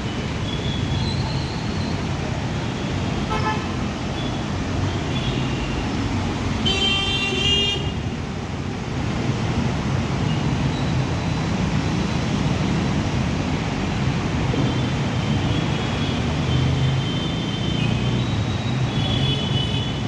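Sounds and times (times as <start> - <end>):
road traffic rumble: 0.0 - 20.0
vehicle horn: 6.6 - 8.0.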